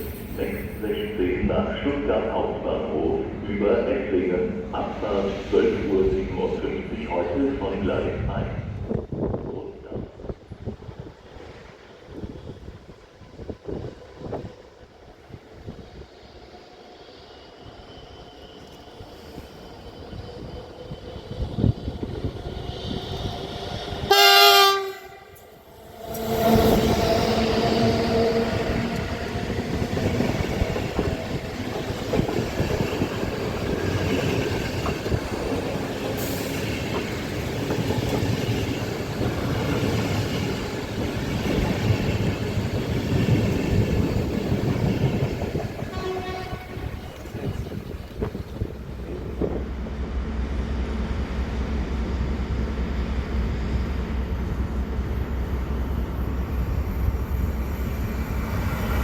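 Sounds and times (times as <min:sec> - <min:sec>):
train wheels on rails: 0:00.0 - 0:01.2, 0:10.5 - 0:59.0
train horn: 0:24.1 - 0:25.4, 0:45.8 - 0:47.4.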